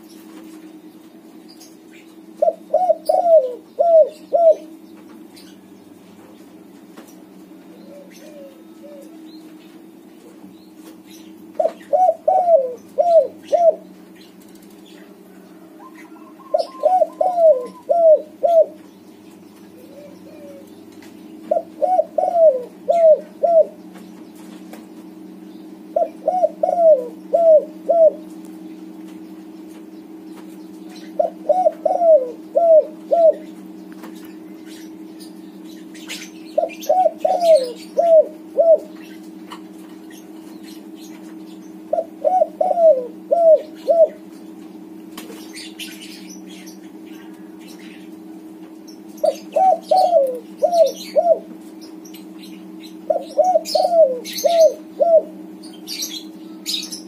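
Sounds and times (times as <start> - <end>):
steady low hum: 0.0 - 57.0
dove cooing: 2.2 - 4.8, 7.7 - 9.4, 11.4 - 14.0, 14.8 - 18.8, 19.7 - 23.9, 25.8 - 28.4, 31.0 - 33.8, 35.9 - 39.4, 40.8 - 44.3, 49.2 - 52.0, 52.6 - 57.0.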